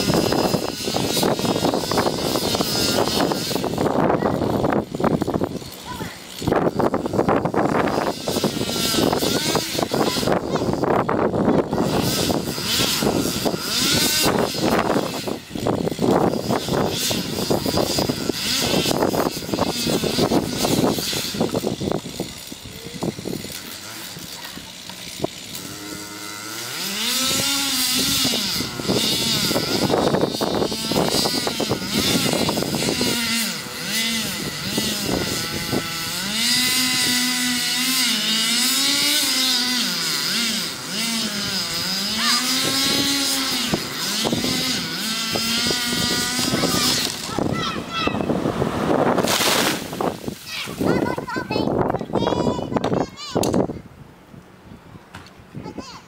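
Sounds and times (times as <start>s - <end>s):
chainsaw engine revving: 0.0s - 51.9s
rough noise with cracks and rattles: 45.5s - 53.7s.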